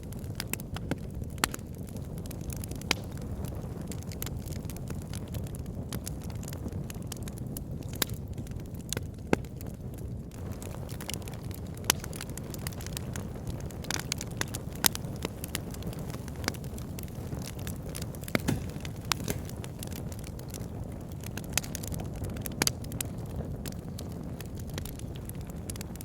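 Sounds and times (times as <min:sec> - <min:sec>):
fire crackling and popping: 0:00.0 - 0:26.0
low rumble of flames: 0:00.0 - 0:26.0.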